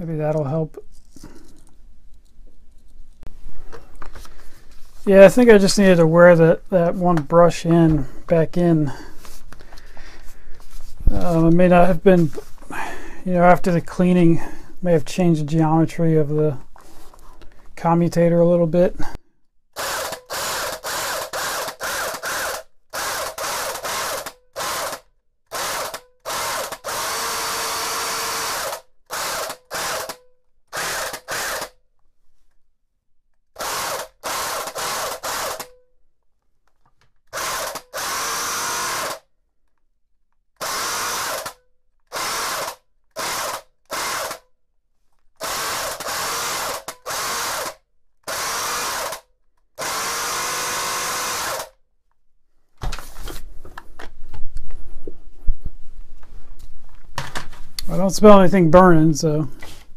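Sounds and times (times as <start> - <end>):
rotary hammer motor bursts: 19.8 - 31.8, 33.6 - 35.8, 37.3 - 39.3, 40.6 - 44.4, 45.4 - 51.8.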